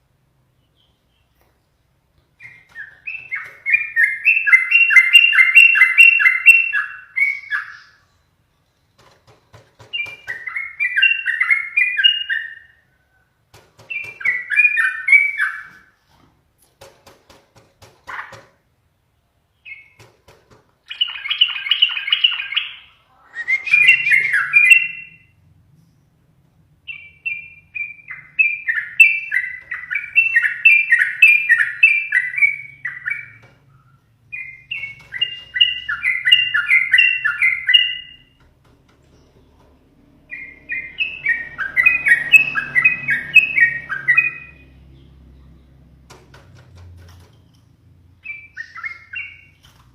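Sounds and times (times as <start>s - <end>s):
bird singing bubbling phrases: 20.9s - 25.3s.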